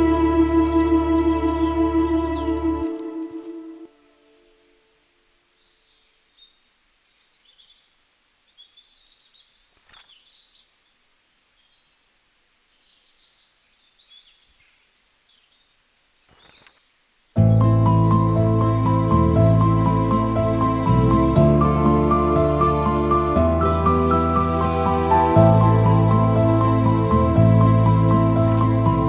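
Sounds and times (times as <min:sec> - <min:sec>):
faint birds chirping: 0:00.0 - 0:29.0
loud background music: 0:17.5 - 0:29.0.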